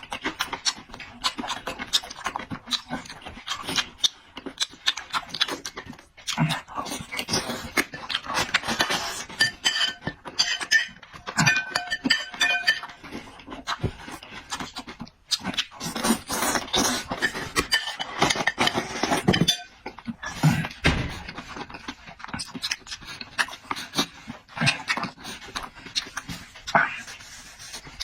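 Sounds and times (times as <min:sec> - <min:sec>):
wet chewing and slurping: 0:00.0 - 0:28.0
utensils clinking on dishes: 0:08.8 - 0:13.1, 0:17.1 - 0:19.8.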